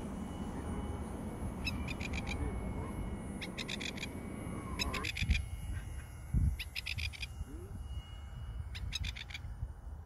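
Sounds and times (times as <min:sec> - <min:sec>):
bird chirping: 0:01.6 - 0:02.5, 0:03.4 - 0:07.3, 0:08.7 - 0:09.5
wind rumble on microphone: 0:03.7 - 0:10.0.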